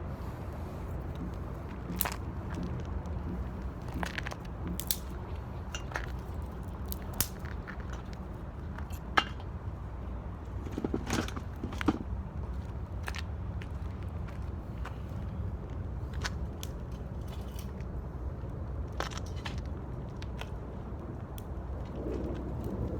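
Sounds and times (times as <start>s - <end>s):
fire low rumble: 0.0s - 22.9s
wood fire crackling and popping: 0.6s - 9.4s.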